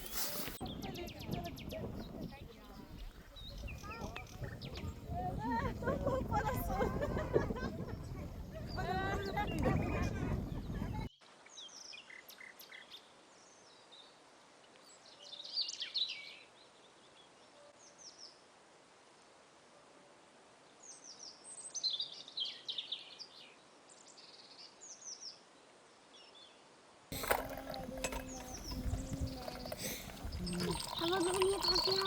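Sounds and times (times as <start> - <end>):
songbirds chirping: 0.0 - 18.4, 20.6 - 32.0
faint background hiss: 11.2 - 32.0.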